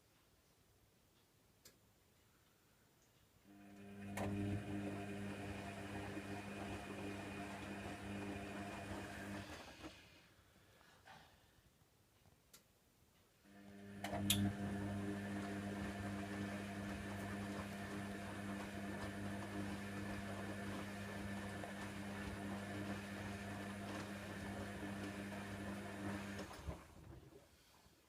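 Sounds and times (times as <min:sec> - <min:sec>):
washer dryer pump running: 0:03.5 - 0:10.0, 0:13.5 - 0:27.2.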